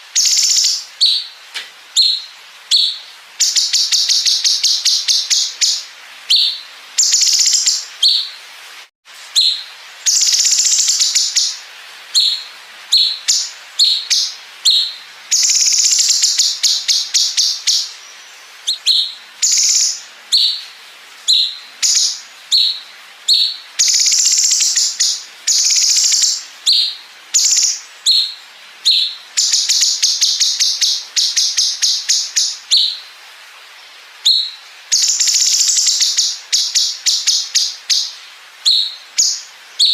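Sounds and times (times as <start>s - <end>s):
bird short high chirps: 2.0s - 8.3s, 18.6s - 20.7s, 34.2s - 38.1s.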